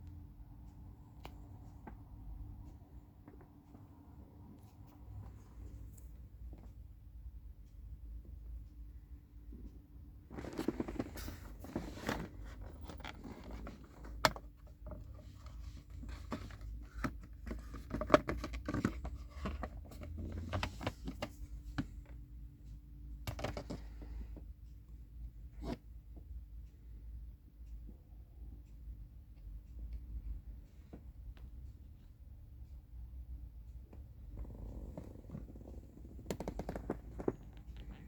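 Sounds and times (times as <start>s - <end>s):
clicks scrapes and rustles: 10.3s - 22.0s, 34.8s - 38.0s.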